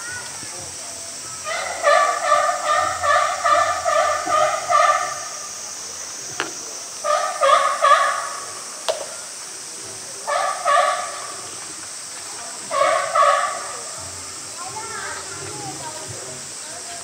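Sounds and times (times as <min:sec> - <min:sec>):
bird calling harsh notes: 0:01.4 - 0:05.6, 0:07.0 - 0:08.6.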